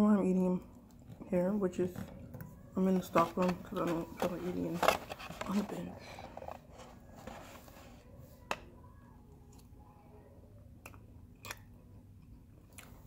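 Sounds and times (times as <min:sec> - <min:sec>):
faint steady hum: 0:00.0 - 0:13.0
chewing soft food: 0:10.8 - 0:13.0.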